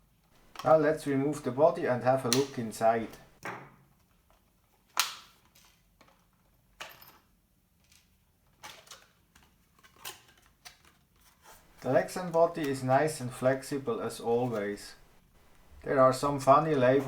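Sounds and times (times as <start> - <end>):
sharp plastic clicks: 2.3 - 3.2.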